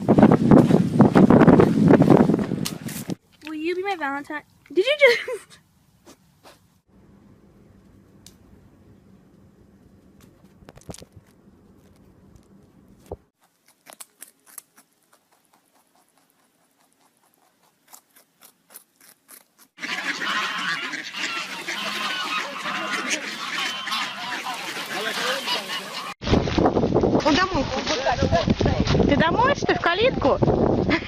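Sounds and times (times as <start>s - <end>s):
waterfowl honking: 19.8s - 26.2s.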